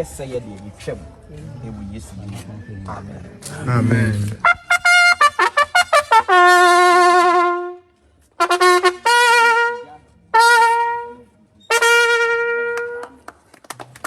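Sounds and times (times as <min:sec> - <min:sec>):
trumpet playing: 0:04.1 - 0:13.2.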